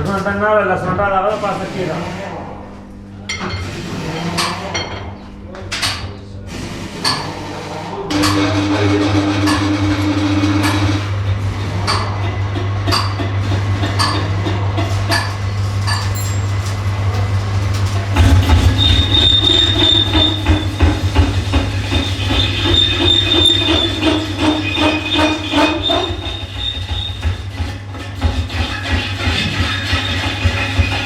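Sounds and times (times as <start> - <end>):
machine hum: 0.0 - 31.0
high metallic squeal: 15.9 - 16.8, 18.2 - 27.7.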